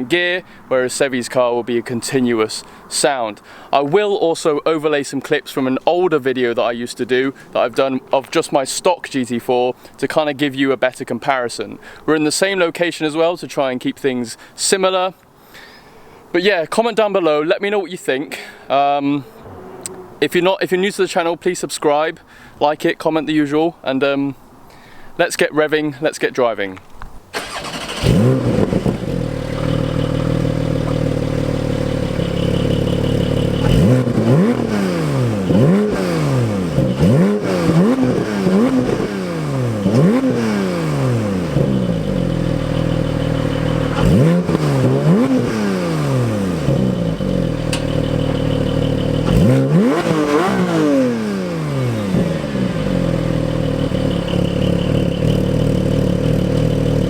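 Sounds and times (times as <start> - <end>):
car engine idling and revving: 19.3 - 20.2, 27.4 - 57.0.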